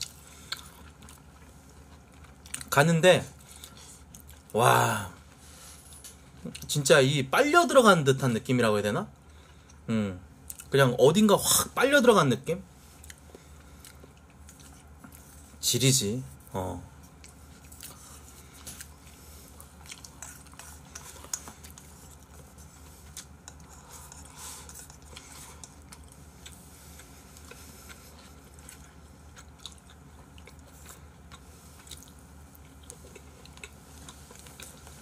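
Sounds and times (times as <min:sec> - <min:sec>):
quiet chewing of food: 0:00.0 - 0:02.7, 0:03.3 - 0:04.5, 0:09.2 - 0:10.7, 0:12.7 - 0:15.6, 0:16.3 - 0:35.0
low room hum: 0:00.0 - 0:35.0.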